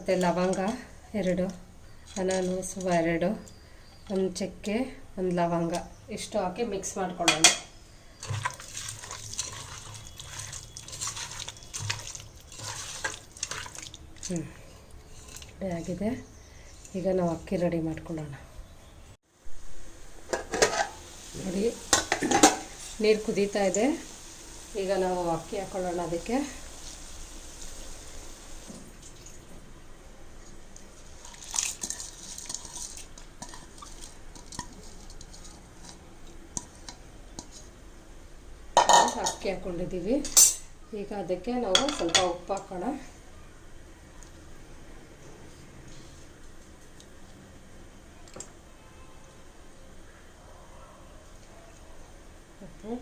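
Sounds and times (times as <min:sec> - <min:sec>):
wet sloppy stirring: 0:00.0 - 0:04.4, 0:08.2 - 0:17.3, 0:30.4 - 0:37.8
utensils clinking against pot: 0:07.2 - 0:15.6, 0:20.3 - 0:21.0, 0:21.9 - 0:22.8, 0:38.8 - 0:39.5, 0:40.2 - 0:40.7, 0:41.8 - 0:42.4.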